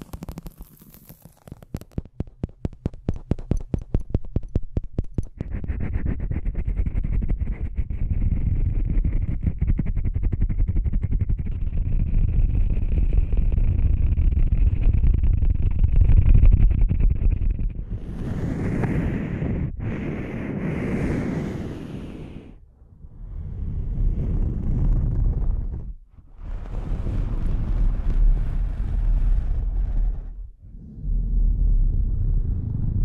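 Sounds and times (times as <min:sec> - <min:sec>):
continuous scratching: 0:00.0 - 0:19.9
rapid sharp taps: 0:01.4 - 0:06.6.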